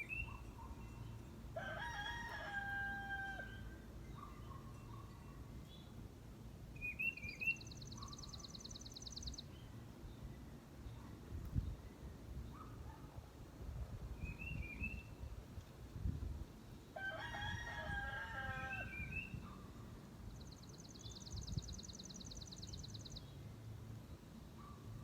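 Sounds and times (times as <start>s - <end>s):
rooster crowing: 1.6s - 3.8s, 17.0s - 19.2s
small birds chirping: 6.8s - 13.0s, 18.7s - 23.5s.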